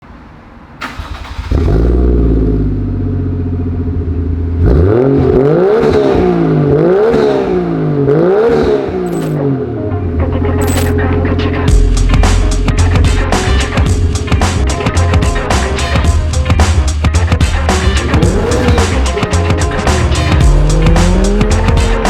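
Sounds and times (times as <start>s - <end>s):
car engine starting: 0.8s - 22.0s
car engine revving: 1.0s - 9.6s, 10.6s - 22.0s
car engine idling: 10.2s - 22.0s.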